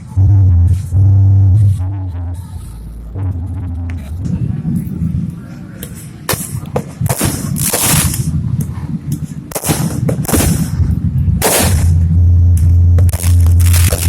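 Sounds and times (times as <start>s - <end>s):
loud low rumble: 0.0s - 14.0s
fireworks banging: 4.2s - 14.0s
fireworks hissing: 5.8s - 8.3s, 11.4s - 12.0s.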